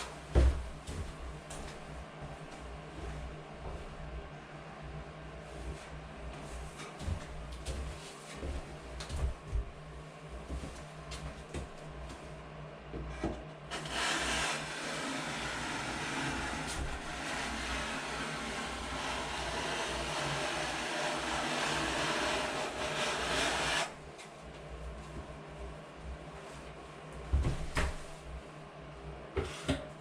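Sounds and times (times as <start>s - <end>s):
small power tool whirring: 13.7s - 24.0s.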